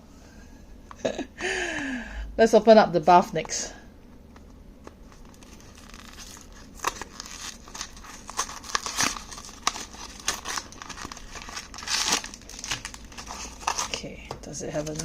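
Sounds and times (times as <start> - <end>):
plastic wrapping crinkling and tearing: 5.0 - 15.0.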